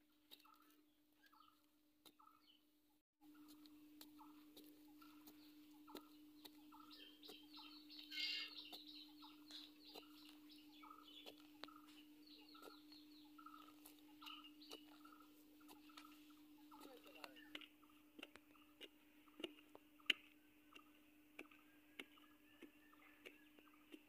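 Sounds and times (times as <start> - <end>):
steady hum: 3.2 - 21.6
faint bird calls: 3.2 - 24.0
stick digging into dry soil: 3.4 - 24.0.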